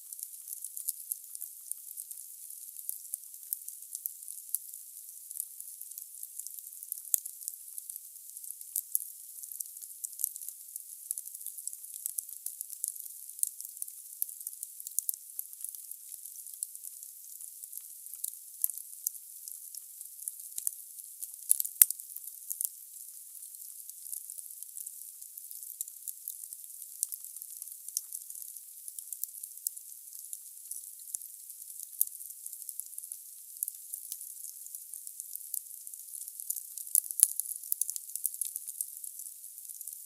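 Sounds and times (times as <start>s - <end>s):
wood fire crackling and hissing: 0.2s - 2.1s.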